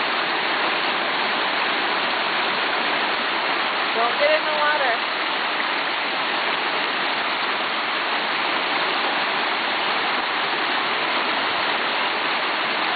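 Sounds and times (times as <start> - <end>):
stream flowing over rocks: 0.0 - 12.9.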